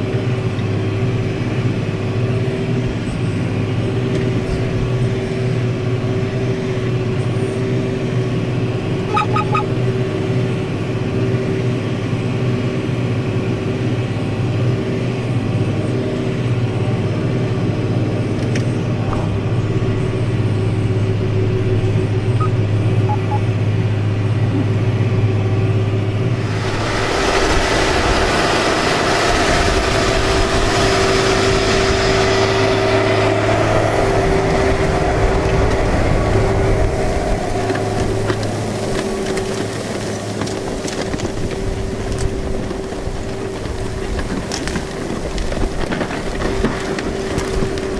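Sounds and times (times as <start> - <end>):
engine running under load: 0.0 - 47.9
rough hissing noise: 26.3 - 33.8.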